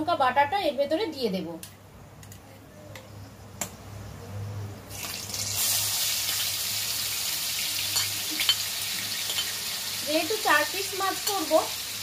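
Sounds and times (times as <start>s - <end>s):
paste sizzling in hot oil: 4.9s - 12.0s.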